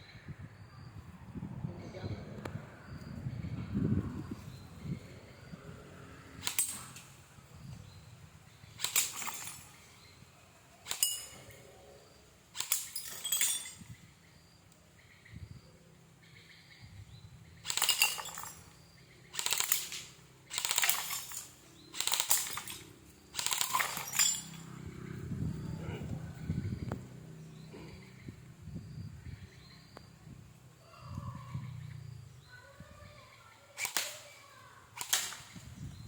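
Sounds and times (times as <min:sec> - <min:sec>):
pellets hitting glassy targets: 0:08.8 - 0:09.9, 0:10.9 - 0:11.5, 0:12.6 - 0:14.0, 0:17.7 - 0:18.8, 0:19.4 - 0:24.8.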